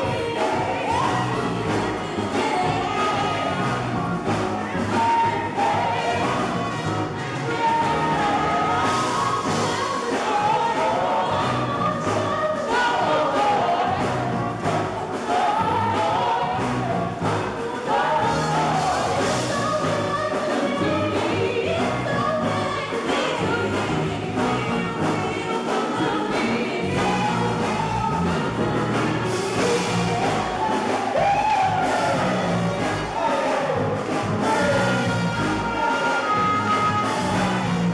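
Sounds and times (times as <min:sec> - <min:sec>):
gospel singers with band: 0:00.0 - 0:37.9
solo voice singing: 0:34.4 - 0:37.9.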